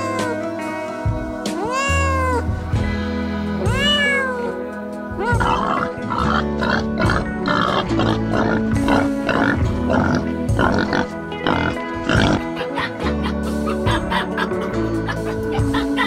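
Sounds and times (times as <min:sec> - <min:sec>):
cat meowing: 0:00.0 - 0:00.5, 0:01.6 - 0:02.5, 0:03.7 - 0:08.2
background music: 0:00.0 - 0:16.0.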